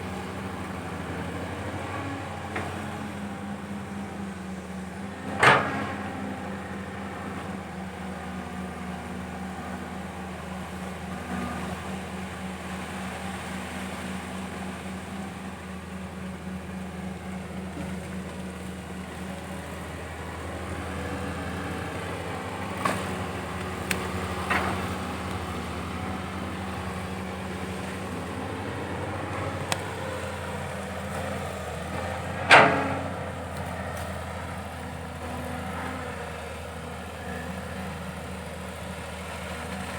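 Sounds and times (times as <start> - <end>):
excavator diesel engine: 0.0 - 39.9
sharp knocks: 32.4 - 33.2.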